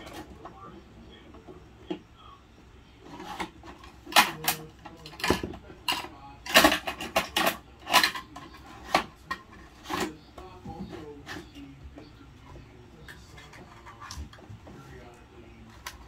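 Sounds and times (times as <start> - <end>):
toy truck plastic clacking: 3.2 - 10.2.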